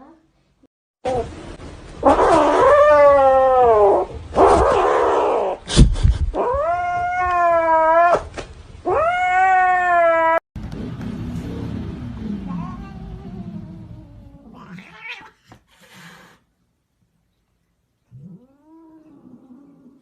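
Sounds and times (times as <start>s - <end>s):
cat yowling: 2.0s - 5.6s, 8.9s - 10.4s, 12.5s - 15.4s.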